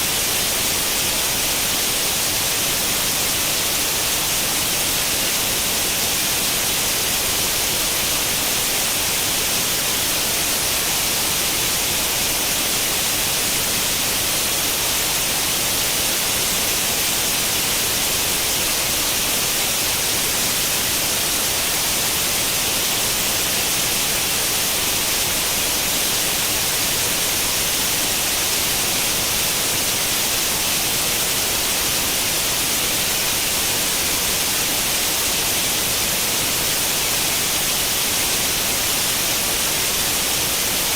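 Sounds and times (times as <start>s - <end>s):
television static hiss: 0.0s - 40.9s.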